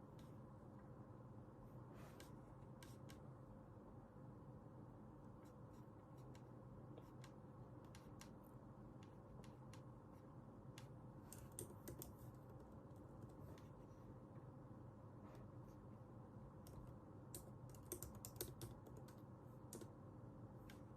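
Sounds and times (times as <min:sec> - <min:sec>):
computer keyboard typing: 0:11.3 - 0:13.7, 0:16.6 - 0:20.0.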